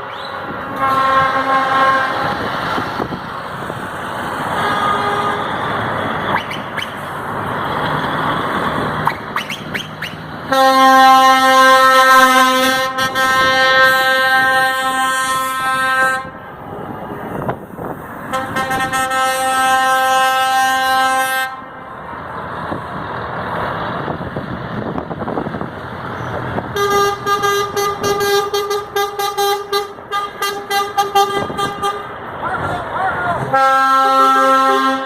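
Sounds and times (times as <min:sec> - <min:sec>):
higher-pitched horn tooting: 0:00.0 - 0:02.4, 0:04.5 - 0:05.6, 0:09.1 - 0:16.4, 0:18.3 - 0:21.8, 0:26.7 - 0:35.0
truck air horn blasts: 0:00.0 - 0:02.5, 0:04.5 - 0:05.7, 0:09.0 - 0:16.5, 0:18.2 - 0:21.9, 0:26.7 - 0:32.2, 0:33.2 - 0:35.0
engine and road noise: 0:00.0 - 0:35.0.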